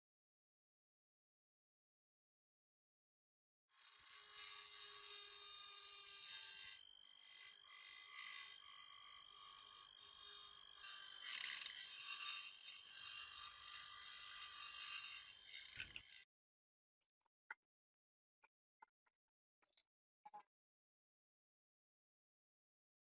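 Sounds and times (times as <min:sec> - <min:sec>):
power tool whining and scraping: 0:03.8 - 0:16.3.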